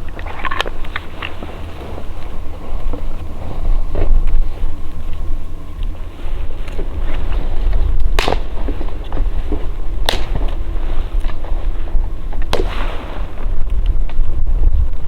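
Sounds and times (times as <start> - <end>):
wind rumble on microphone: 0.0 - 15.0
sharp cracks: 8.0 - 11.6, 12.3 - 14.2.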